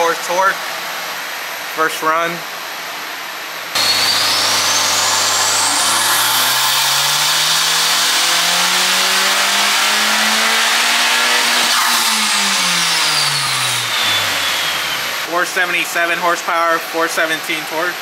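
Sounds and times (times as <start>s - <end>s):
high turbo whine: 3.7s - 16.6s
car engine revving on dyno: 3.8s - 15.3s.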